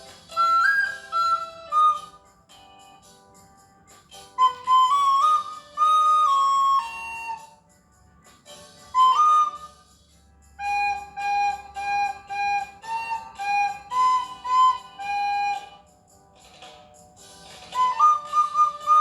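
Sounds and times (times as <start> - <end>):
recorder playing: 0.0 - 2.3, 4.4 - 7.6, 8.9 - 9.8, 10.6 - 15.9, 17.8 - 19.0.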